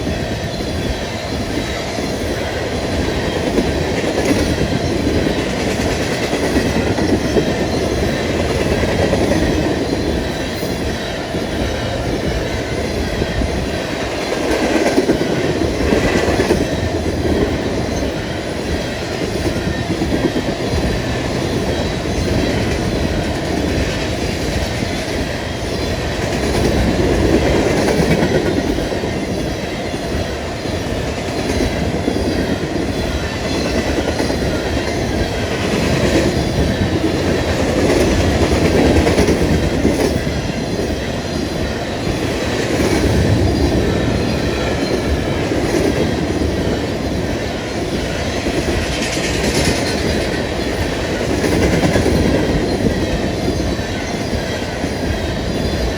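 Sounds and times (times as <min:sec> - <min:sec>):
train wheels clicking over rail joints: 0:00.0 - 0:55.9.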